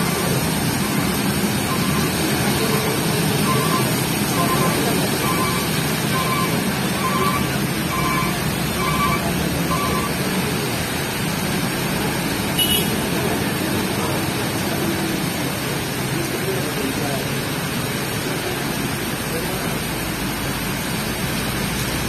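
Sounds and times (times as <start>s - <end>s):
heavy rain: 0.0s - 22.0s
short electronic beeps: 1.7s - 10.2s.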